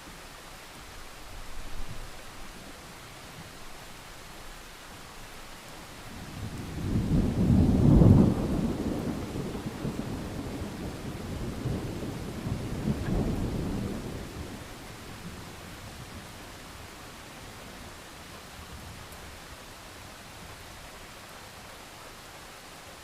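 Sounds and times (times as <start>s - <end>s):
steady rain: 0.0s - 23.0s
thunder rumbling: 6.2s - 16.5s.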